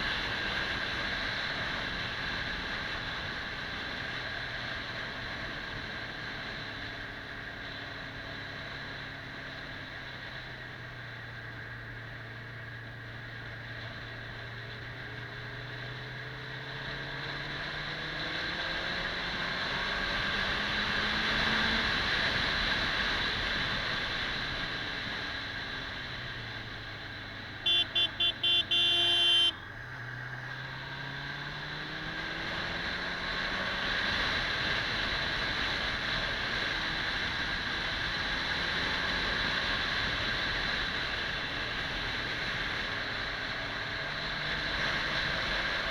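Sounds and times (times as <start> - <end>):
motorcycle engine accelerating: 14.1 - 45.9
horn tooting: 27.6 - 29.7.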